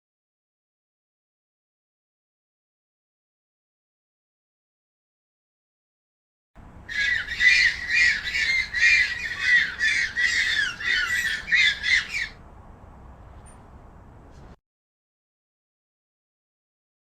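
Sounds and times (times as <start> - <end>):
birds squawking: 6.9 - 12.4.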